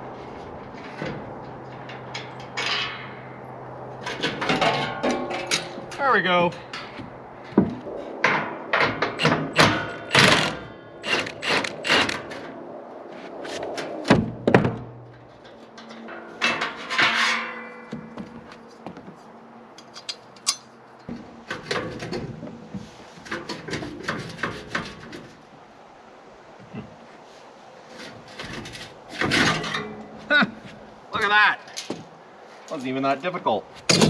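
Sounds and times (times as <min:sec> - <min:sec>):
scraping rattle: 0:14.9 - 0:17.9
heavy ringing clank: 0:15.8 - 0:18.4.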